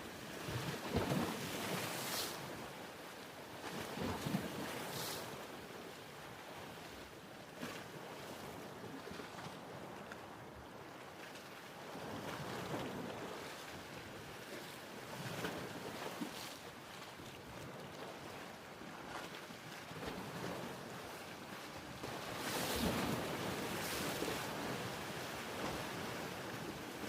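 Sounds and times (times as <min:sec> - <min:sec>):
waves splashing: 0:00.9 - 0:02.7, 0:20.0 - 0:27.0.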